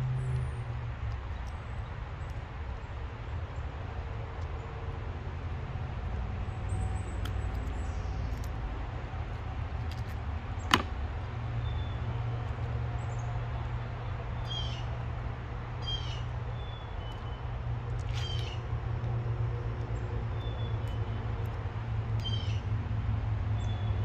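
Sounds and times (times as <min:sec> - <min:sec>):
sharp knock: 0:10.7 - 0:10.9
birds chirping and whistling: 0:14.4 - 0:14.9, 0:15.8 - 0:17.5, 0:18.1 - 0:18.6, 0:22.2 - 0:22.7.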